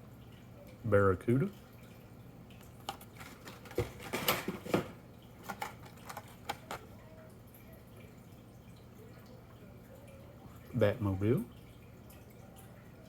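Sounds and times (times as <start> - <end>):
toy cars clicking and knocking: 5.4 - 6.9.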